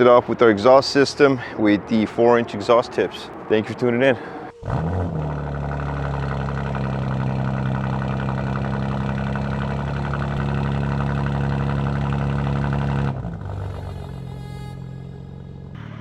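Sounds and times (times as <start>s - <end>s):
car engine idling: 3.2s - 15.8s.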